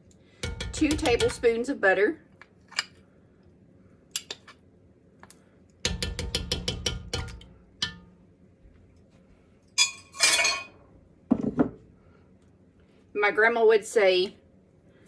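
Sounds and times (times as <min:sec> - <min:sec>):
metal utensil tapping a pot: 0:00.4 - 0:01.6, 0:05.9 - 0:08.2.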